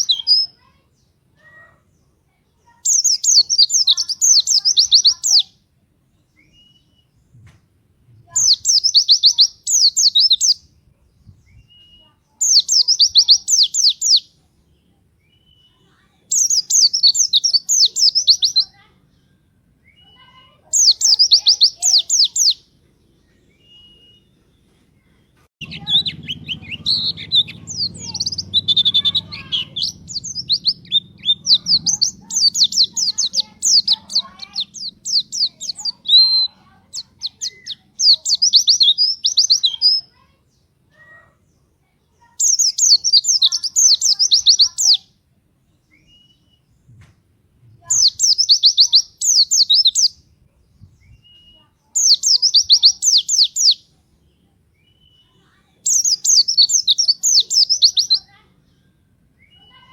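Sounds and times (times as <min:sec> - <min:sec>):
songbird high twittering: 0:00.0 - 0:00.6, 0:02.7 - 0:05.5, 0:08.3 - 0:14.3, 0:15.2 - 0:18.8, 0:19.8 - 0:22.6, 0:25.6 - 0:40.1, 0:42.2 - 0:45.1, 0:47.8 - 0:53.9, 0:54.8 - 0:58.4
low hum: 0:25.6 - 0:32.6.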